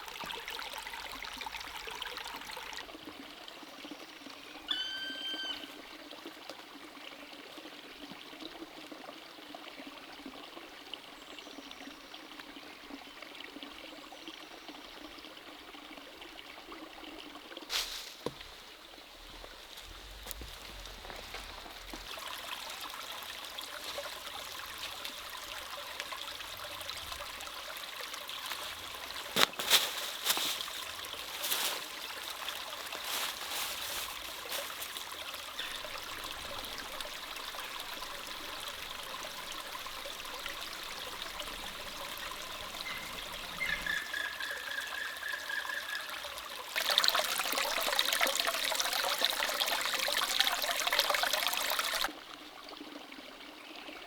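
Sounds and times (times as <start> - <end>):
stream trickling: 0.0 - 54.0
high steady tone: 4.7 - 5.8.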